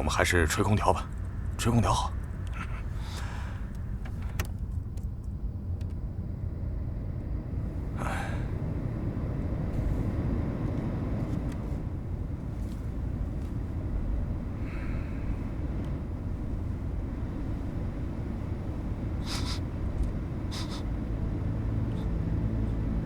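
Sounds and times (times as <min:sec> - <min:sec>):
car road rumble: 0:00.0 - 0:23.0
person sniffing: 0:19.2 - 0:19.6, 0:20.5 - 0:20.9.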